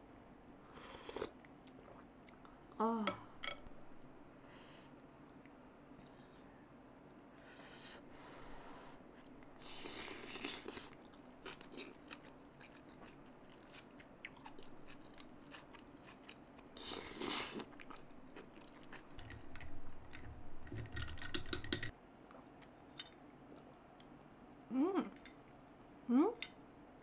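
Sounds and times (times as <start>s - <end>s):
crunchy chewing: 9.2s - 21.3s.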